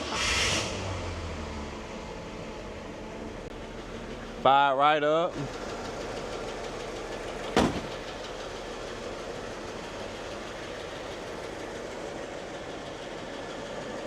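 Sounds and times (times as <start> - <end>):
car engine idling: 1.9 - 14.0
sharp knock: 7.6 - 8.0.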